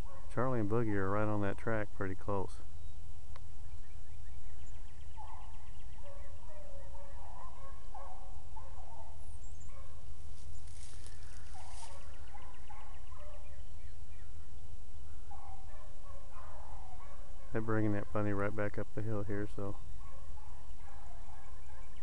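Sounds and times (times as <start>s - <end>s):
hounds baying: 0.0s - 0.6s, 5.0s - 10.0s, 10.7s - 13.7s, 15.0s - 22.0s.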